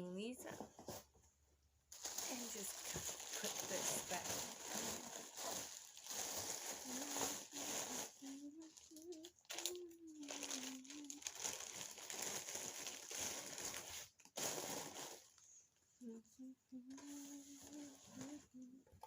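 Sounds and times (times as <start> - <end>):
packaging crinkling and rustling: 1.9 - 15.4
person humming a low wavering tone: 6.7 - 11.3, 16.0 - 19.0.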